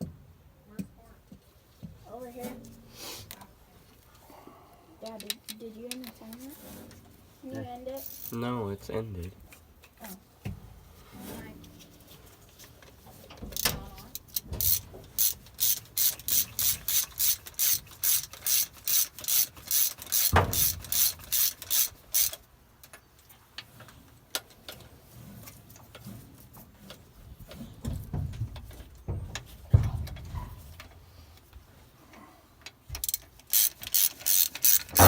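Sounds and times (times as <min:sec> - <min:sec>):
ratchet wrench clicking: 0:08.0 - 0:08.4, 0:13.6 - 0:22.4, 0:32.9 - 0:35.0.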